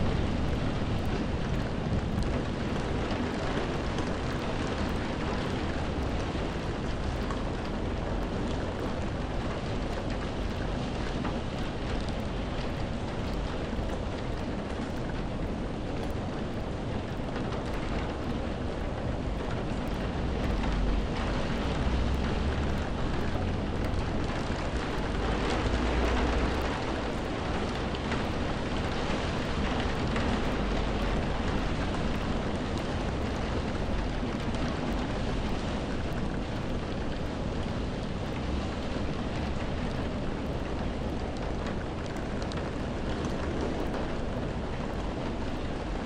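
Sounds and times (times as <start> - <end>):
heavy rain hissing: 19.8 - 42.0.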